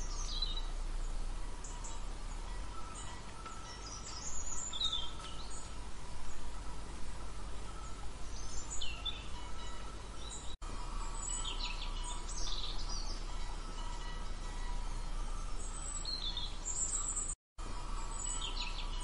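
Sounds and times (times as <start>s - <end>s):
birds chirping: 0.0s - 19.0s
outdoor background hiss: 0.0s - 19.0s.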